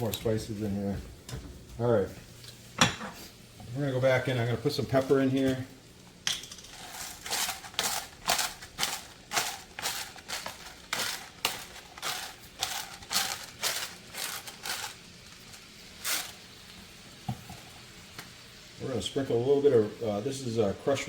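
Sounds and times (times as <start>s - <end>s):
pepper grinder grinding: 6.3s - 16.7s.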